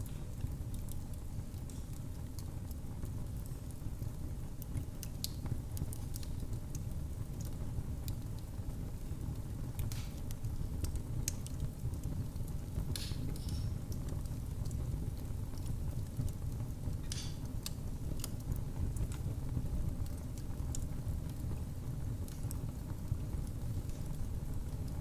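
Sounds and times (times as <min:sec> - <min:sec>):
fire crackling and popping: 0:00.0 - 0:25.0.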